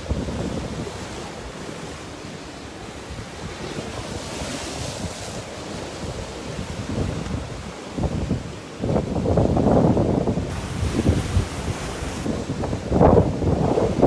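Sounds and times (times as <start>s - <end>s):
wind buffeting microphone: 0.0s - 2.1s, 2.9s - 14.0s
sea surf washing onto shore: 0.0s - 14.0s.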